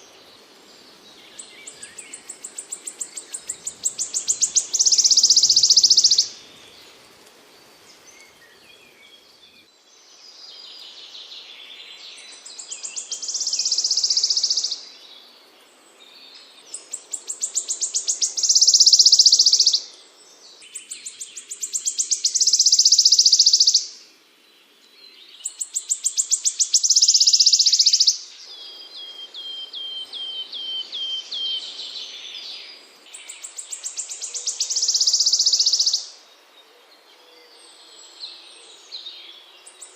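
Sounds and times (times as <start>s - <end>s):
songbird trilling: 1.3s - 6.4s, 12.6s - 14.8s, 16.8s - 19.9s, 20.8s - 24.0s, 25.4s - 32.5s, 33.1s - 36.2s.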